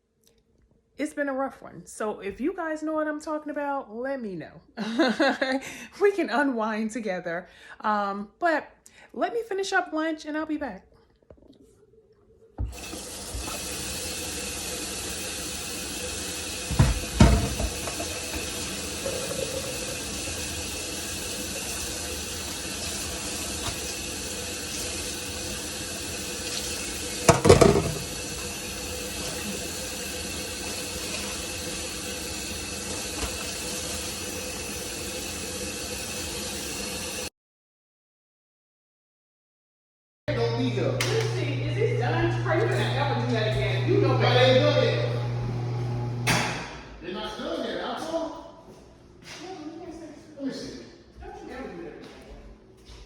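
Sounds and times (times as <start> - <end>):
tap water running into sink: 12.6 - 37.3
loud clunks: 27.3 - 28.1.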